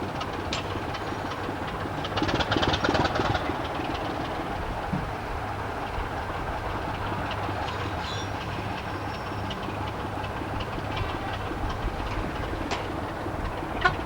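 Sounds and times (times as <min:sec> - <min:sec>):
diesel train rumbling: 0:00.0 - 0:14.0
wheels clicking on rails: 0:00.0 - 0:14.0.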